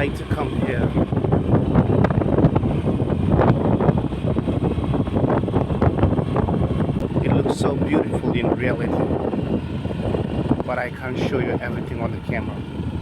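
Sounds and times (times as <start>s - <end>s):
wind buffeting microphone: 0.0s - 13.0s
motor scooter engine running: 0.4s - 8.2s.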